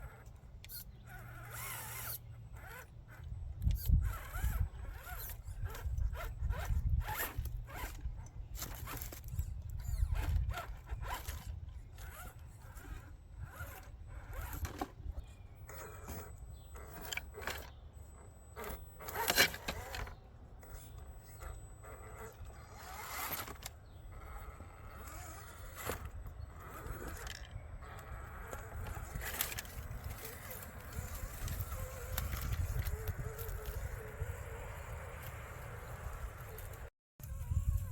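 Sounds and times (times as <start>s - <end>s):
tyres scraping on rock and gravel: 0.1s - 3.2s, 3.8s - 36.9s.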